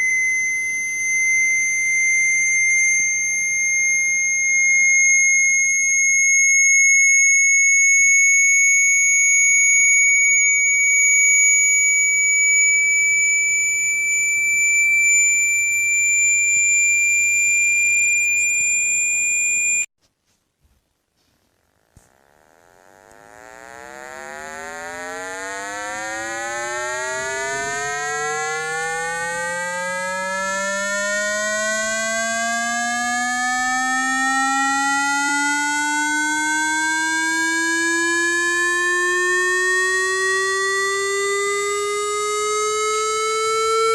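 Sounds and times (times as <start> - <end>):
high-pitched electronic tone: 0.0 - 7.3, 9.2 - 19.9, 22.2 - 40.5
low buzzy rising tone: 10.8 - 19.9, 21.8 - 34.0.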